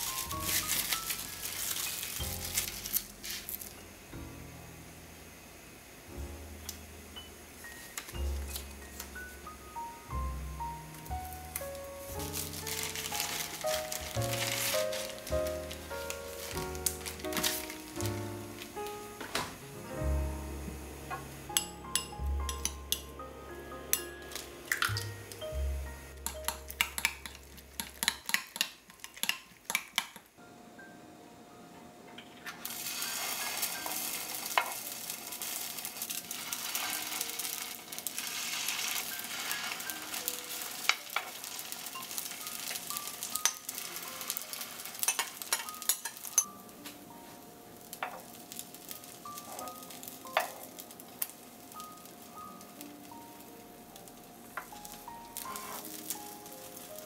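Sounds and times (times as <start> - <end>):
batter sizzling in hot oil: 0.0 - 3.9, 6.8 - 19.2, 32.5 - 46.8, 47.7 - 57.0
utensils clicking against pan: 21.6 - 23.1, 26.2 - 30.3, 36.4 - 46.5
spoon clicking against glass bowl: 26.2 - 30.2.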